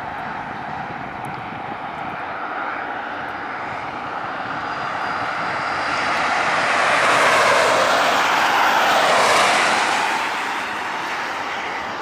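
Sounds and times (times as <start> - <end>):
freight train rumbling past: 6.3 - 12.0.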